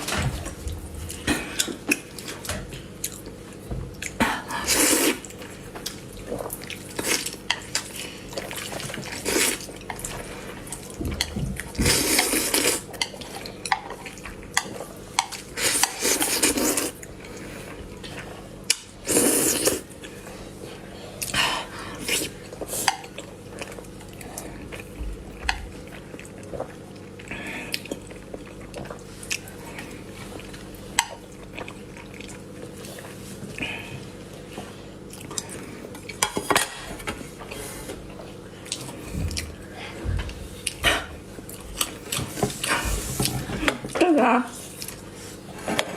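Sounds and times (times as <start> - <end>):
slurping noodles: 4.6 - 5.3, 11.8 - 12.9, 15.6 - 17.0, 19.0 - 19.8.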